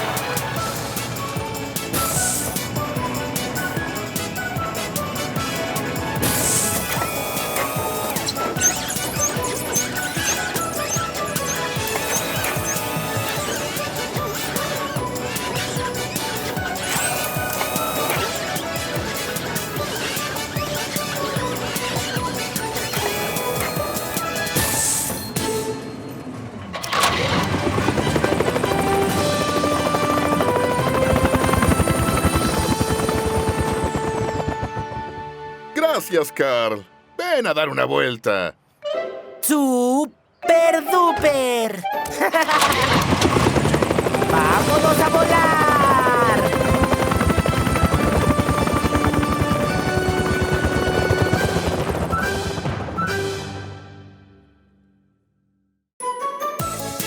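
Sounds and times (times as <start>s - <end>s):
cartoon helicopter rotor chopping: 0.0s - 25.3s, 26.7s - 35.4s, 42.0s - 53.4s
background music: 0.0s - 54.9s, 56.0s - 57.0s.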